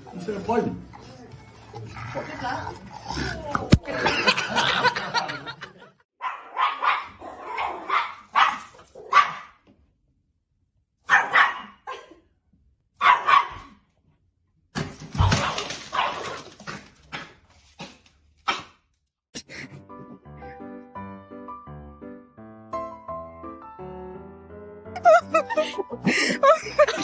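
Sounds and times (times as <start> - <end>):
dogs barking: 6.2 - 9.6, 11.0 - 12.0, 13.0 - 13.8, 15.2 - 16.4.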